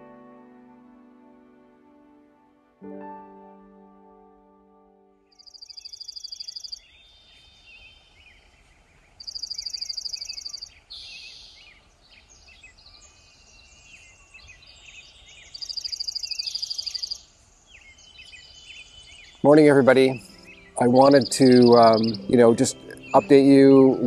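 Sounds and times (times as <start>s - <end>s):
birds chirping: 5.3s - 24.0s
bird high trill: 5.4s - 7.2s, 9.2s - 11.6s, 15.4s - 17.2s, 19.4s - 24.0s.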